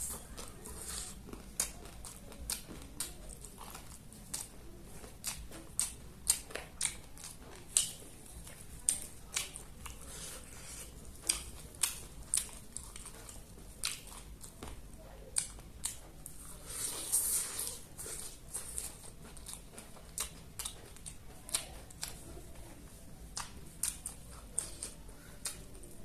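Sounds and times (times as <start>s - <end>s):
person chewing crunchy food: 0.0s - 22.6s, 23.2s - 25.9s.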